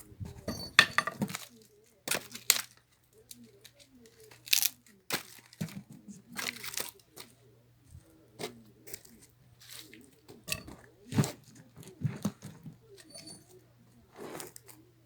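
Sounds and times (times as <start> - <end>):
axe splitting firewood: 0.4 - 1.4.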